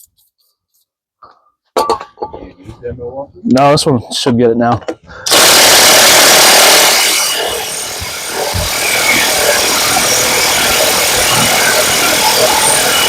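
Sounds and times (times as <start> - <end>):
impact wrench hammering: 5.3 - 13.0.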